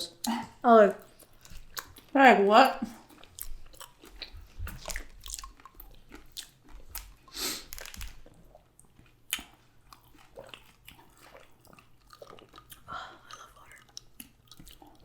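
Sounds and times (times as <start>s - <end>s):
chewing and biting food: 1.0s - 2.2s, 2.9s - 15.0s
crunchy snaps: 6.4s - 8.3s.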